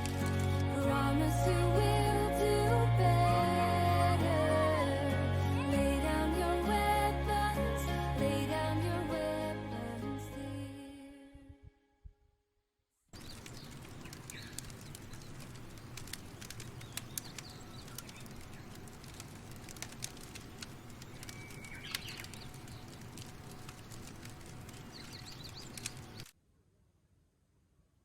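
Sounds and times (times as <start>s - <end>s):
small sharp clicks: 0.0s - 0.7s, 13.2s - 26.4s
steady low rumble: 0.0s - 10.8s
birds chirping: 13.2s - 26.3s.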